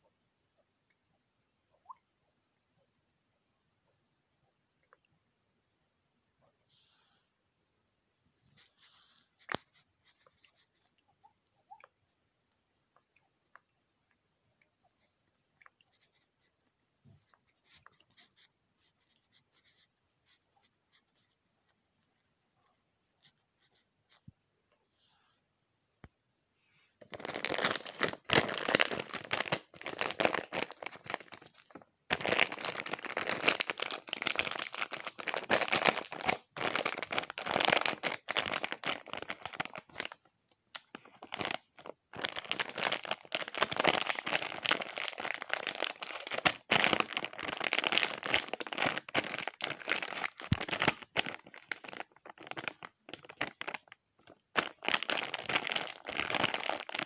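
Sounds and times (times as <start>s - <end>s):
crinkling and crackling: 26.8s - 57.0s.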